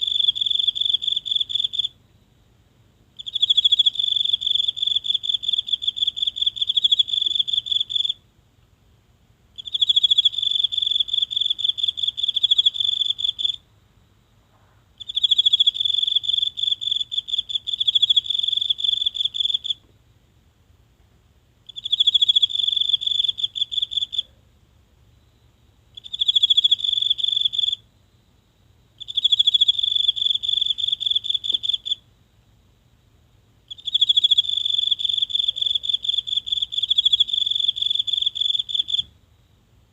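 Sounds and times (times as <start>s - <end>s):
insect trilling: 0.0s - 2.0s, 9.6s - 13.6s, 15.0s - 19.8s, 21.7s - 24.3s, 25.9s - 27.8s, 29.0s - 32.0s, 33.7s - 39.1s.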